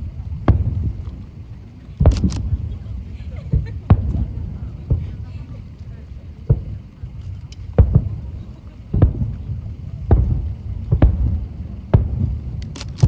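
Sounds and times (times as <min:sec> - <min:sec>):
fireworks booming: 0:00.0 - 0:13.0
low rumble of echoes: 0:00.0 - 0:13.0.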